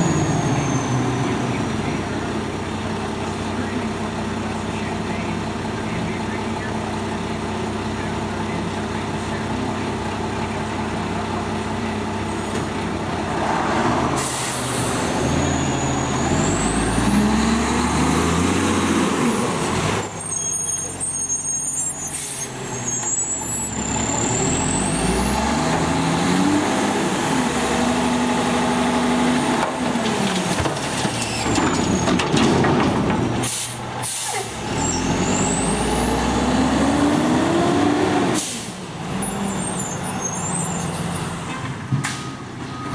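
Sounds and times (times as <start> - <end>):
truck diesel engine revving: 0.0 - 31.0, 33.2 - 41.5
air brakes hissing: 14.2 - 15.1, 33.4 - 34.6.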